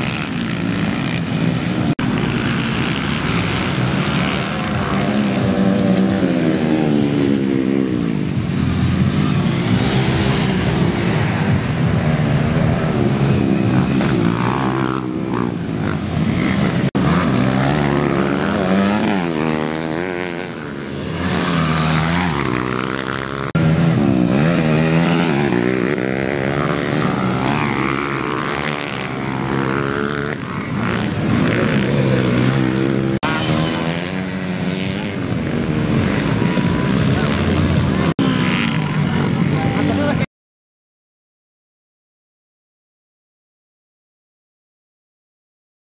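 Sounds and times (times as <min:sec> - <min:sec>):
motorcycle engines revving: 0:00.0 - 0:40.3.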